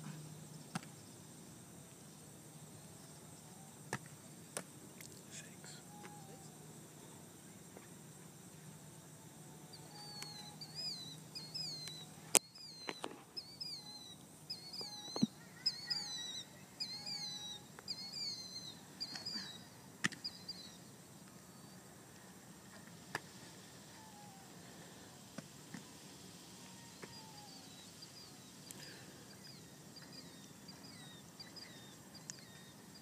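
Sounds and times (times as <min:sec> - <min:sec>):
songbird whistling: 0:05.7 - 0:06.6, 0:09.7 - 0:20.9, 0:26.6 - 0:33.0.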